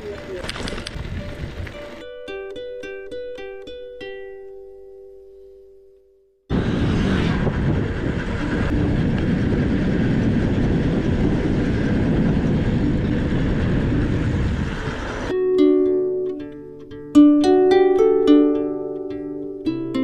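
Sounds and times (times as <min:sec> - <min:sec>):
loud rumbling rush of noise: 0:06.5 - 0:15.3.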